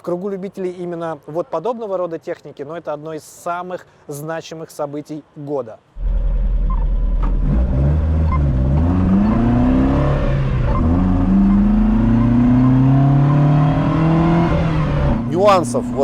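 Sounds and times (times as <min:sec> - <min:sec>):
car engine accelerating: 0:06.0 - 0:16.0.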